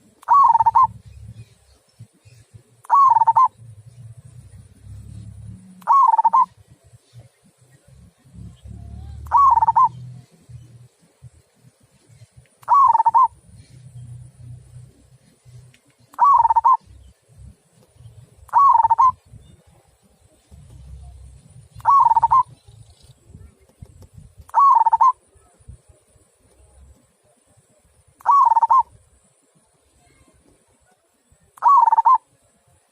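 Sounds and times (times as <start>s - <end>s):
faint low rumble: 0.0s - 31.6s
dove cooing: 0.2s - 1.3s, 2.9s - 6.6s, 8.2s - 10.6s, 12.7s - 14.9s, 16.2s - 16.9s, 18.5s - 19.2s, 20.8s - 22.7s, 24.5s - 25.2s, 28.2s - 28.9s, 31.6s - 32.3s.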